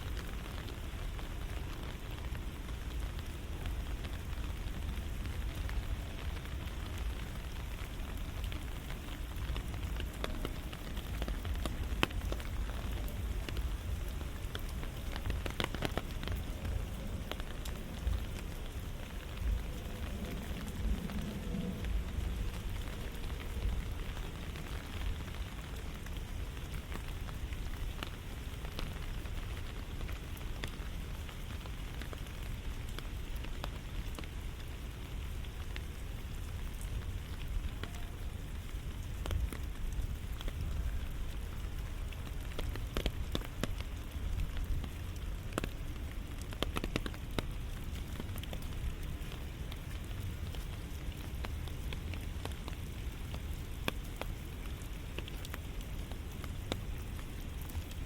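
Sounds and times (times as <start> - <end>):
steady rain falling: 0.0 - 58.0
low rumble: 2.9 - 26.5.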